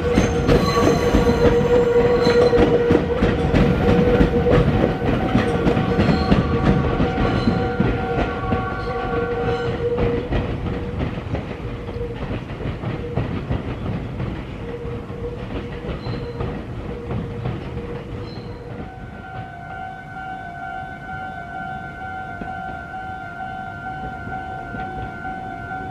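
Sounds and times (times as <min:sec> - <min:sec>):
horn-like pitched tone: 0:00.0 - 0:10.2, 0:18.7 - 0:25.9
steady warning tone: 0:00.0 - 0:11.2, 0:14.6 - 0:25.9
train wheels clattering over rails: 0:00.0 - 0:19.6.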